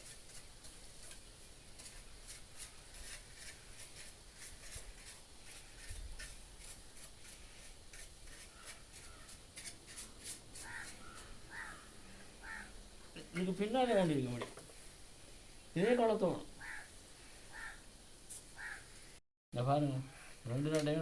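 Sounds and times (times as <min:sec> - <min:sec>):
brush scrubbing: 0:00.0 - 0:11.4.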